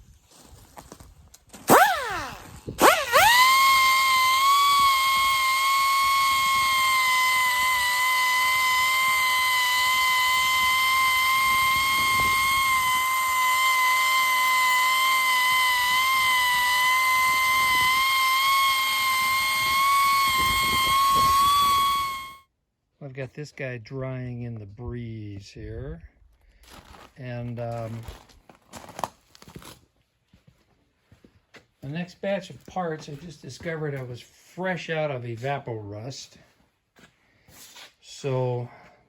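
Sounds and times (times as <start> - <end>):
power tool high-pitched whine: 1.7 - 22.4.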